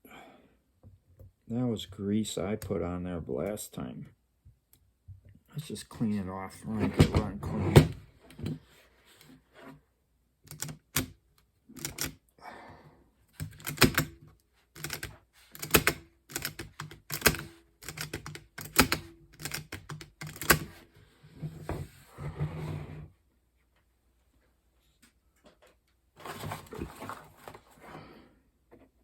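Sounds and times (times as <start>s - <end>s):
small parts clicking and knocking: 10.5s - 11.2s, 11.8s - 12.2s, 13.4s - 14.2s, 14.8s - 20.8s.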